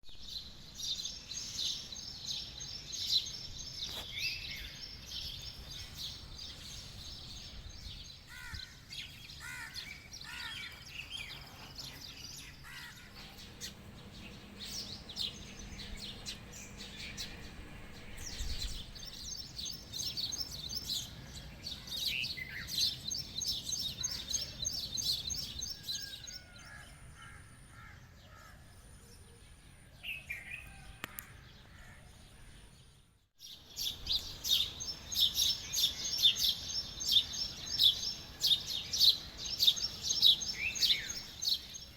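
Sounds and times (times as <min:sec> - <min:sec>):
birds chirping and calling: 0:00.1 - 0:41.9
low background noise: 0:00.2 - 0:26.5.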